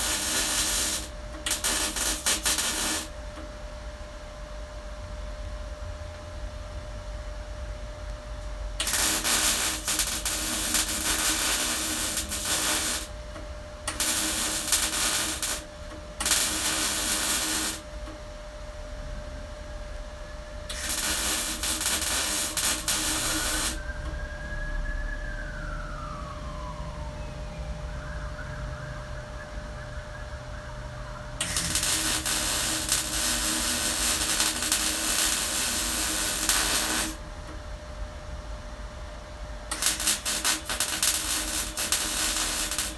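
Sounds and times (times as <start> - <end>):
welder crackling hiss: 0.0 - 3.2, 8.8 - 13.2, 13.9 - 18.2, 20.7 - 24.2, 31.4 - 37.3, 39.7 - 42.9
faint tone sliding down: 21.0 - 33.4.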